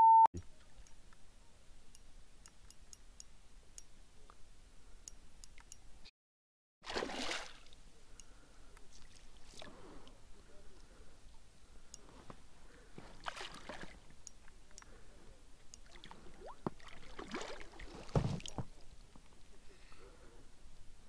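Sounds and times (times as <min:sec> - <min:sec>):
fish splashing: 0:06.8 - 0:07.8, 0:13.2 - 0:14.1, 0:15.8 - 0:18.6
water lapping and dripping: 0:06.8 - 0:10.2, 0:13.1 - 0:15.0, 0:15.6 - 0:19.4.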